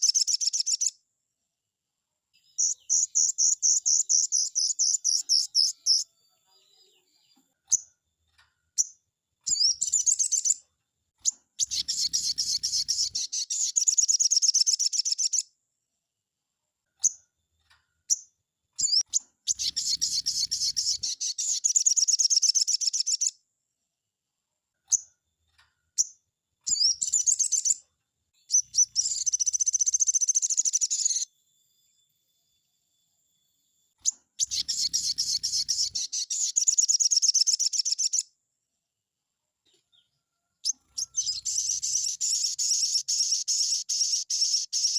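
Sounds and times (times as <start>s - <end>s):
bird chirps: 0.0s - 1.0s, 2.4s - 15.5s, 18.0s - 23.4s, 25.9s - 31.4s, 34.0s - 38.4s, 39.6s - 44.9s
bird trilling: 2.6s - 6.0s, 11.6s - 15.4s, 18.8s - 23.3s, 28.5s - 31.3s, 34.0s - 38.2s, 40.6s - 44.9s.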